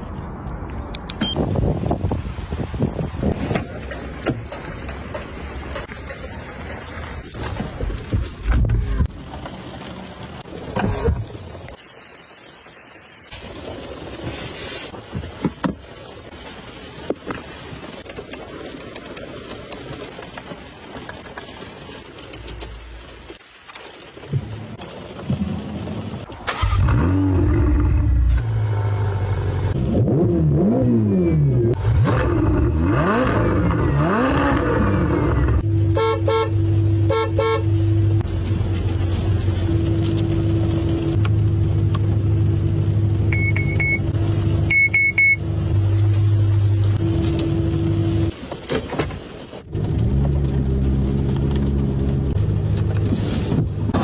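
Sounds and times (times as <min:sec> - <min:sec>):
car engine revving: 0:26.5 - 0:35.6
car horn toots: 0:35.9 - 0:37.7.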